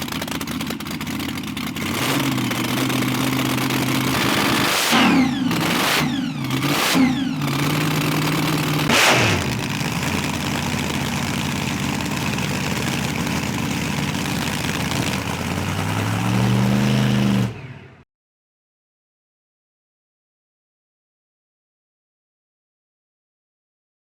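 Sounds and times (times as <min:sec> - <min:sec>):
drag car engine revving and idling: 0:00.0 - 0:18.0.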